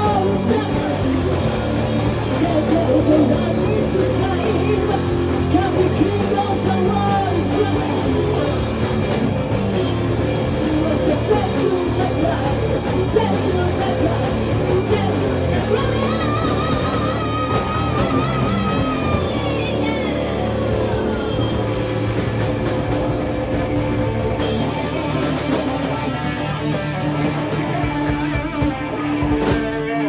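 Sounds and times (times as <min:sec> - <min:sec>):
person singing: 0:00.0 - 0:09.0, 0:10.2 - 0:22.2
rock band playing loudly: 0:00.0 - 0:30.0.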